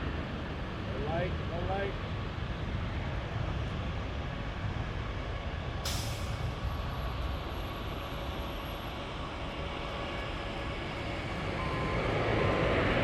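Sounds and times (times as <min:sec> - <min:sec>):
jet airliner engines rumbling: 0:00.0 - 0:13.0
faint high whine: 0:07.0 - 0:13.0.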